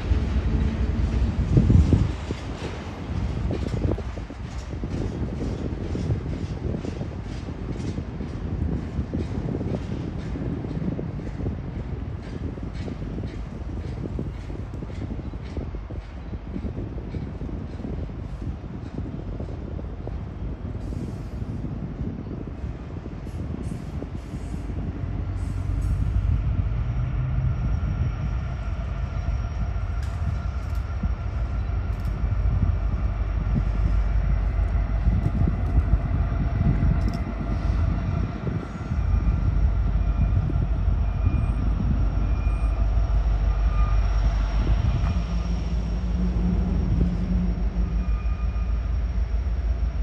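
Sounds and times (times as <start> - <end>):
freight train rumbling past: 0.0 - 50.0.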